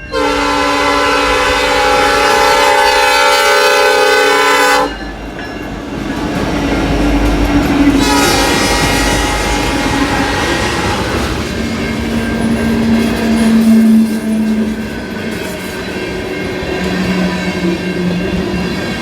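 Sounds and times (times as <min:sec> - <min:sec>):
locomotive air horn: 0:00.1 - 0:05.0, 0:08.0 - 0:11.5
freight train rumbling and clattering: 0:00.1 - 0:19.0.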